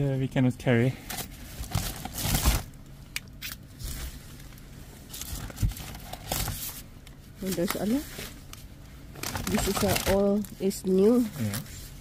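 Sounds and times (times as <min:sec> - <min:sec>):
plastic bags rustling: 0:01.2 - 0:02.8, 0:03.8 - 0:11.8.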